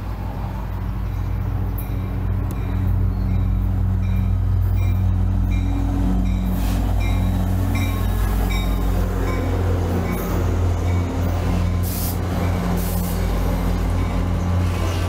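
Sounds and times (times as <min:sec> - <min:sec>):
diesel locomotive engine drone: 0:00.0 - 0:15.0
locomotive bell ringing: 0:01.0 - 0:11.6.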